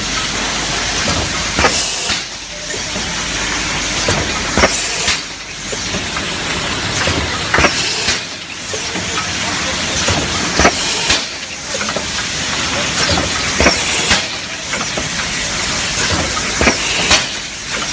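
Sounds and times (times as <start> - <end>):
filling machine hiss: 0.0 - 17.9
machine sharp clacks: 0.0 - 17.9.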